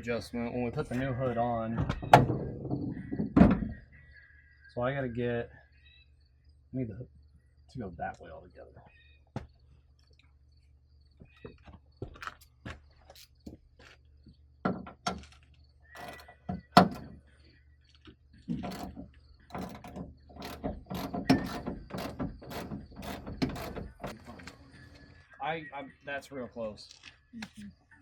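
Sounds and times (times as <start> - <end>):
ratchet wrench clicking: 16.0 - 16.2, 19.5 - 24.2
sharp metal knocks: 16.0 - 17.2, 18.6 - 24.3.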